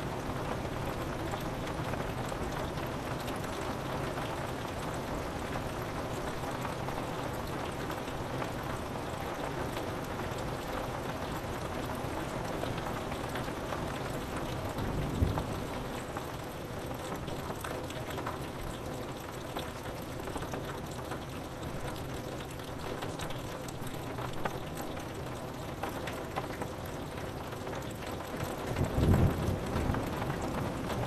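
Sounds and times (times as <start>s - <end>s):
rain pattering on window glass: 0.0s - 31.0s
distant thunder rumble: 14.8s - 16.1s.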